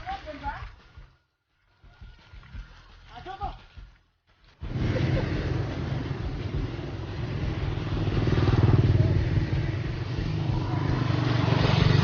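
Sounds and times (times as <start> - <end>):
motorcycle engine running: 4.6 - 12.0.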